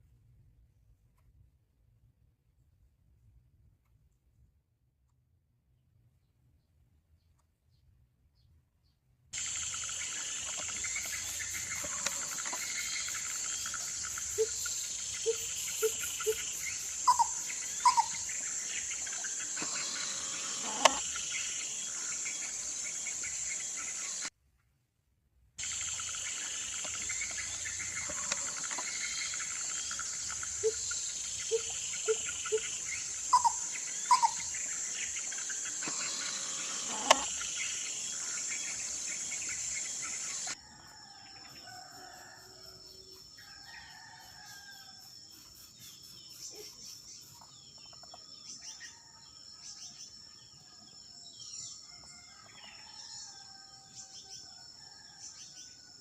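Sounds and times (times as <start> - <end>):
birds calling: 9.4 - 24.3, 25.6 - 40.6
high insect drone: 9.4 - 24.3, 25.6 - 44.8.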